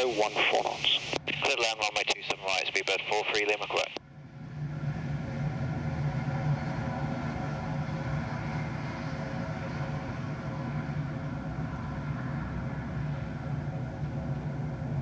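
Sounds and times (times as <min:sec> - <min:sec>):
jet engines rumbling: 0:00.0 - 0:04.0.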